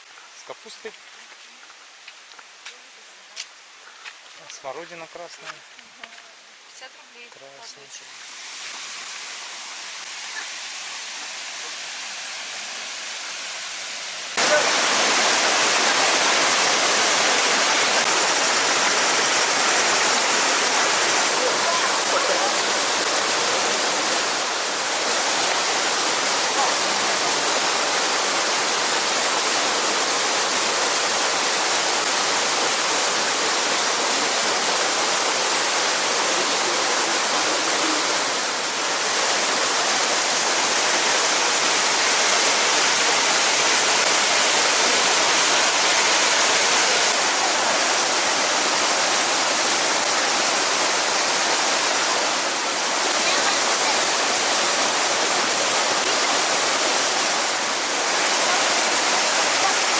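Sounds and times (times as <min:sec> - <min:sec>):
waterfall and stream rushing: 0:00.0 - 0:59.9.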